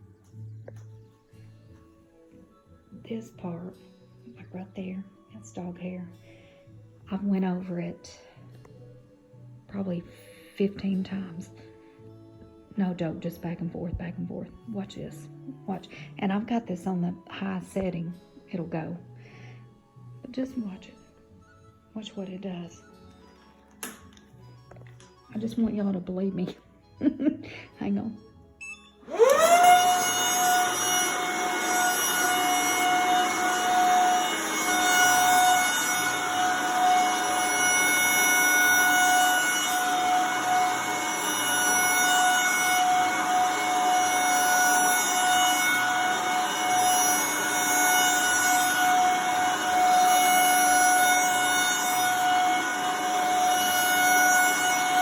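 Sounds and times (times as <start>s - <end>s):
vacuum cleaner high-pitched whine: 29.1s - 55.0s.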